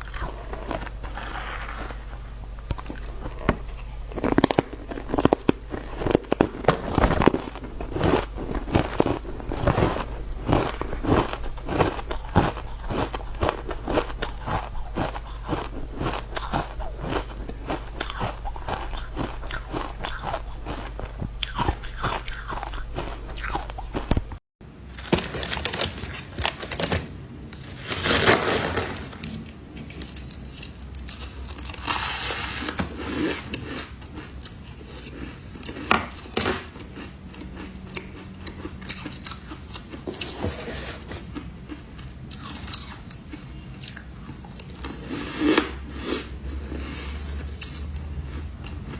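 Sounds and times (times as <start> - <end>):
person crunching ice: 0.0 - 24.4, 30.1 - 37.7.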